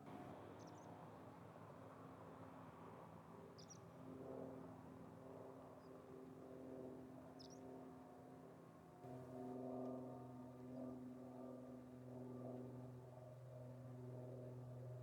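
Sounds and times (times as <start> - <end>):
distant aircraft drone: 0.0 - 15.0.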